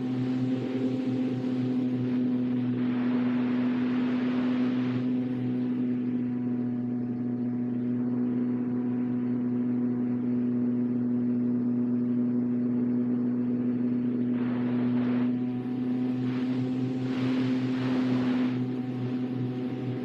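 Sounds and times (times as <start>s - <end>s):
model airplane motor drone: 0.0s - 20.0s.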